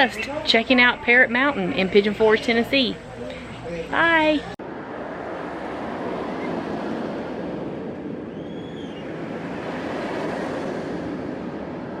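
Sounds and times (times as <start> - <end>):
wind noise on microphone: 4.6 - 12.0
faint high whistle: 8.3 - 9.1.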